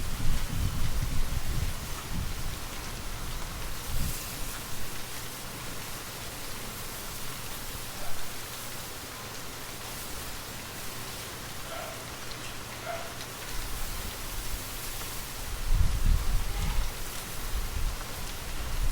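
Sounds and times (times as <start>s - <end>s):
wind gusts rumbling: 0.0s - 4.1s
steady rainfall: 0.0s - 18.9s.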